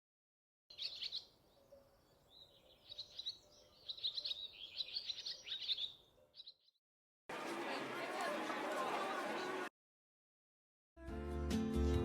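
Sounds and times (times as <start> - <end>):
birds chirping: 0.7 - 9.7.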